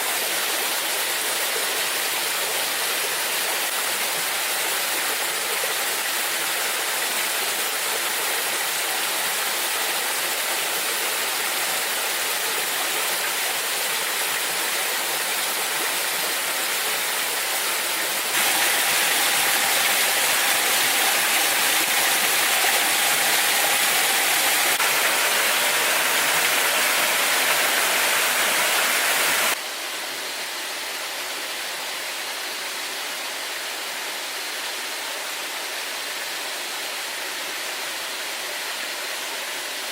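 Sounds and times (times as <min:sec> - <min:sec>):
waterfall rushing: 0:00.0 - 0:29.6.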